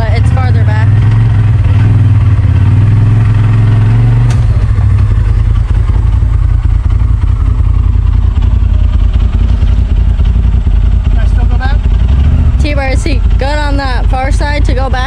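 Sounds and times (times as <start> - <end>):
utility vehicle engine running: 0.0 - 15.0.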